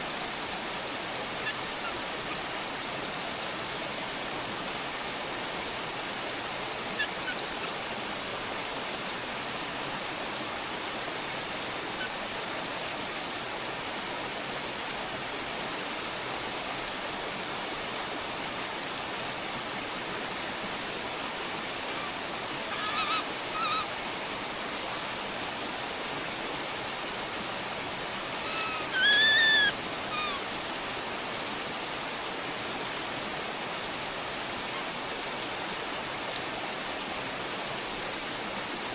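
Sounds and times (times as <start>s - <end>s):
bird harsh calls: 0.4s - 3.4s, 6.9s - 7.8s, 22.0s - 23.9s, 28.4s - 30.4s.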